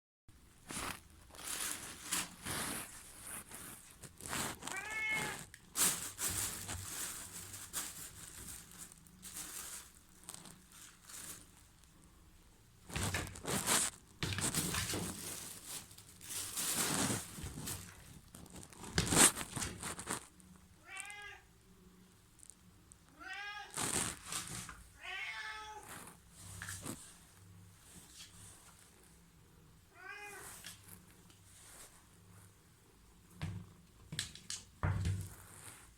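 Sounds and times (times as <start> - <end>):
cats meowing: 4.7 - 5.5, 20.8 - 21.5, 23.1 - 23.8, 25.0 - 25.9, 29.9 - 30.6
rustling and bumping: 12.9 - 20.3.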